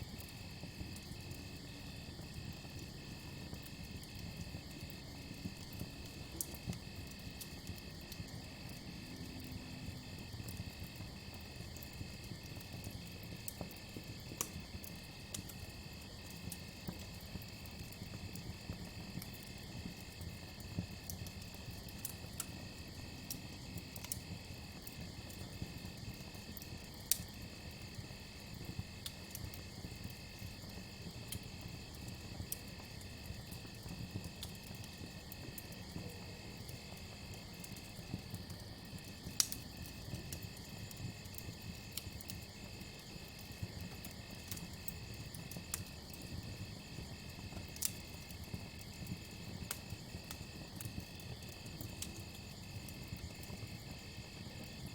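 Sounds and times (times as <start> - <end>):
campfire crackling and popping: 0.0 - 54.9.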